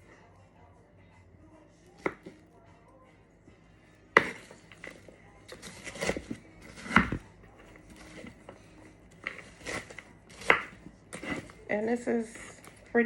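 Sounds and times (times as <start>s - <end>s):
knife chopping on cutting board: 2.0s - 2.4s, 4.2s - 7.2s, 7.9s - 8.4s, 9.2s - 11.6s.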